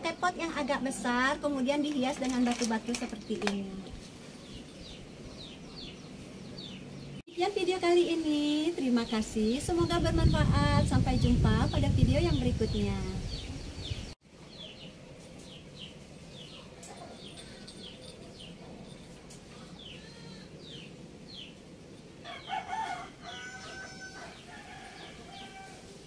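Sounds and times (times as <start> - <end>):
rooster crowing: 22.2 - 26.0.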